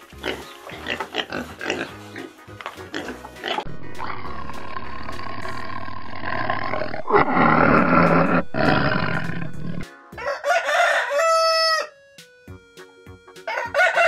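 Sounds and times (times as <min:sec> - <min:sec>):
tiger roaring: 0:03.7 - 0:09.8
rooster crowing: 0:07.6 - 0:12.0, 0:13.5 - 0:14.0.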